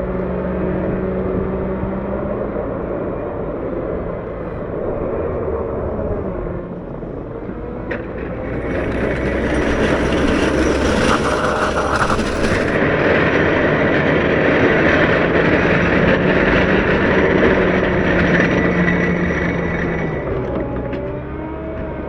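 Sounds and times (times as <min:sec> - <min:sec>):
diesel engine under load: 0:00.0 - 0:22.0
snow pusher scraping snow: 0:08.6 - 0:12.8.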